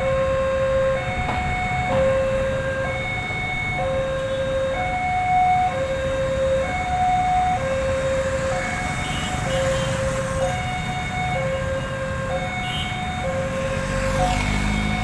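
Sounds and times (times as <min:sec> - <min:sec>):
level crossing two-tone alarm: 0:00.0 - 0:15.0.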